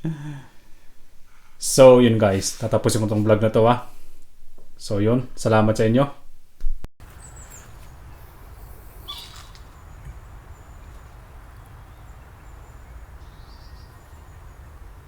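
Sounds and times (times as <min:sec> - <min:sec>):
faint high chirps: 0:07.0 - 0:15.0.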